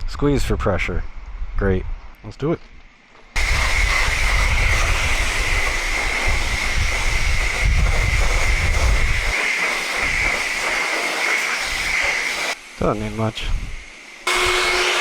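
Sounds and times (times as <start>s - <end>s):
pressure washer spraying: 3.4s - 12.6s, 14.3s - 15.0s.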